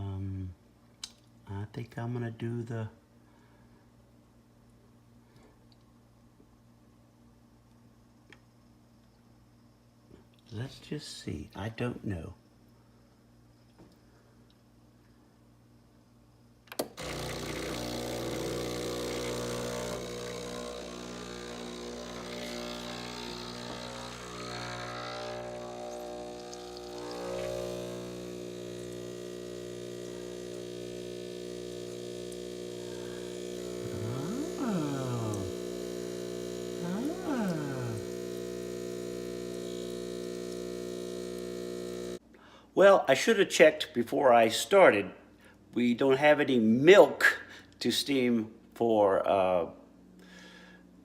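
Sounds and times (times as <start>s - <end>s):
espresso machine pump humming: 17.0s - 42.2s.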